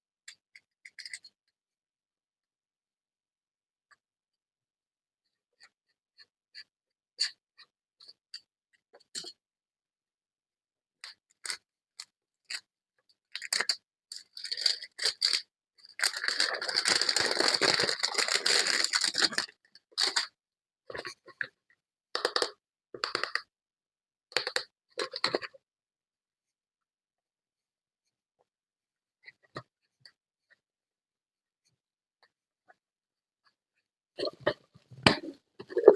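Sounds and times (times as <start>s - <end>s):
packaging crinkling and tearing: 16.0s - 20.2s.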